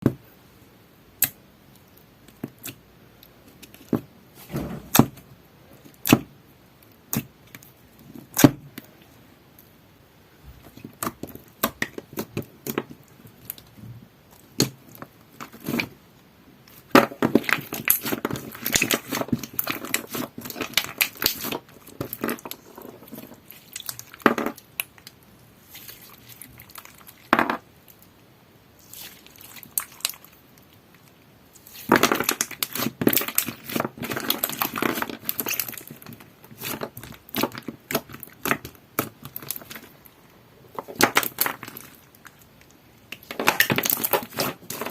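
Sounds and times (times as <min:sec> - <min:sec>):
slime popping and crackling: 0:16.7 - 0:25.2, 0:28.8 - 0:40.0, 0:40.8 - 0:44.9.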